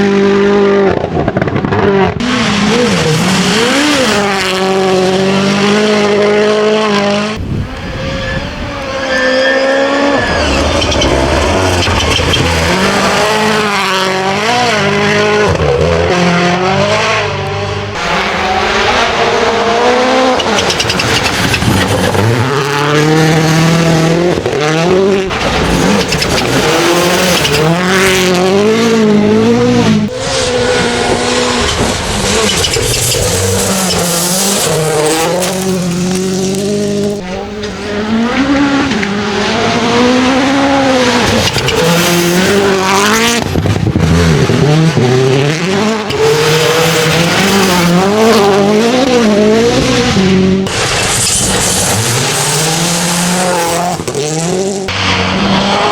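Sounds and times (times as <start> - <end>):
rally car engine revving: 0.0 - 55.9
tyres crunching on gravel: 30.8 - 37.2.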